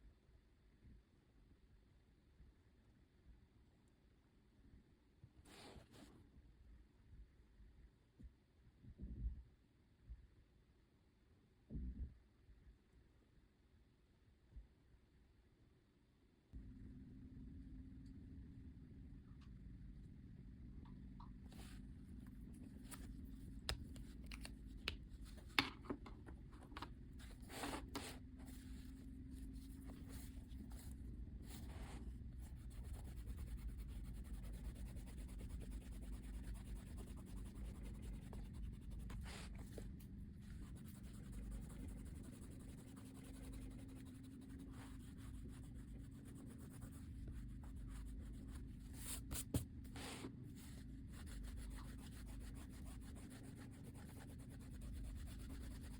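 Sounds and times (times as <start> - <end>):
steady low hum: 16.6 - 55.9
drawing tool scratching paper: 29.7 - 39.8, 40.4 - 55.9.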